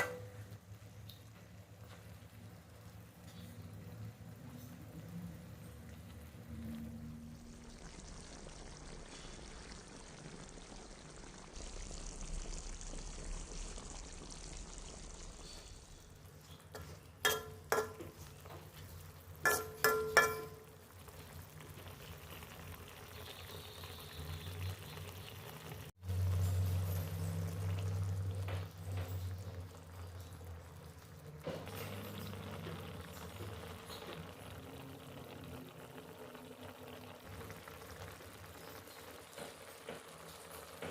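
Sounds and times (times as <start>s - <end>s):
metal utensil clinking on pot: 0.0s - 0.5s, 16.5s - 20.8s
liquid pouring into pot: 0.0s - 40.9s.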